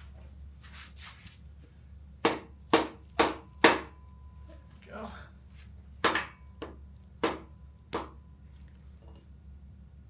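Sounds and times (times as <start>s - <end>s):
hammer strikes on metal: 2.2s - 4.0s, 6.0s - 8.2s.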